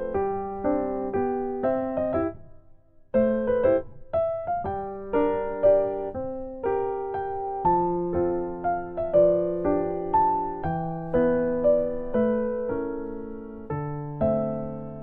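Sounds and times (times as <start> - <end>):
electric piano chords: 0.0 - 15.0.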